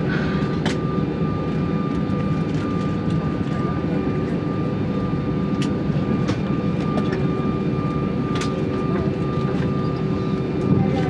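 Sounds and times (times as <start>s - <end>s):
airplane cabin rumble and engine hum: 0.0s - 11.0s.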